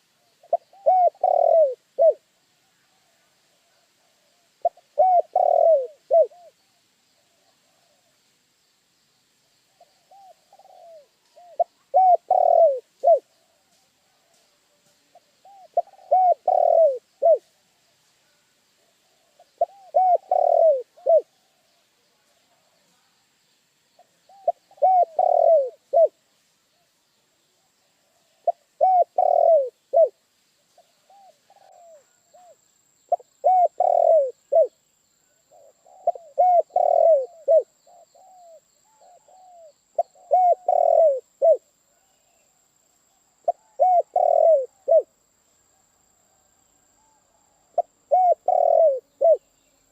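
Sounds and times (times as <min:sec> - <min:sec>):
dove cooing: 0:00.0 - 0:02.2, 0:03.0 - 0:06.6, 0:09.7 - 0:14.4, 0:15.1 - 0:17.5, 0:19.1 - 0:21.7, 0:24.3 - 0:26.2, 0:28.1 - 0:30.2, 0:30.8 - 0:34.8, 0:35.5 - 0:42.3, 0:43.4 - 0:45.1, 0:47.0 - 0:49.5.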